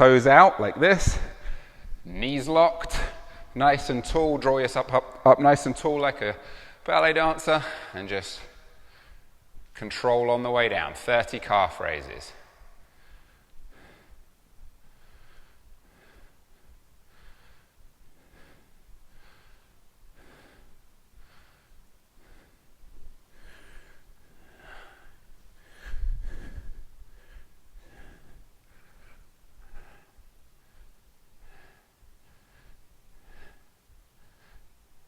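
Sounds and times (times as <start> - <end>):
man breathing through nose: 12.6 - 34.9.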